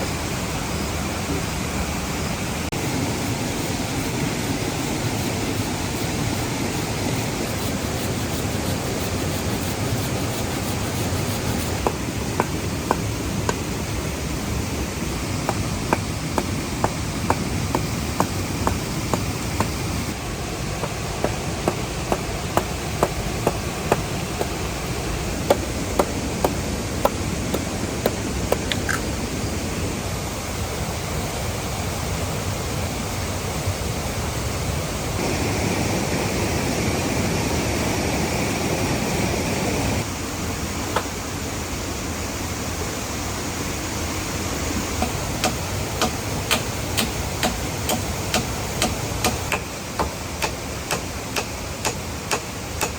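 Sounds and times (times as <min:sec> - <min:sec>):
waterfall rushing: 0:02.5 - 0:29.8
sharp knocks: 0:10.9 - 0:13.6.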